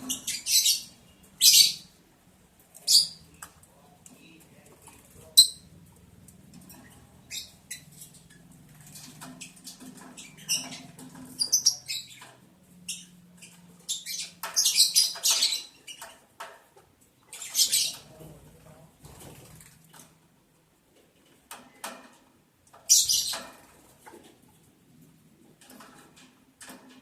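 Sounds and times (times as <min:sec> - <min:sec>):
lovebirds chirping and chattering: 0:00.0 - 0:19.5, 0:22.7 - 0:24.7.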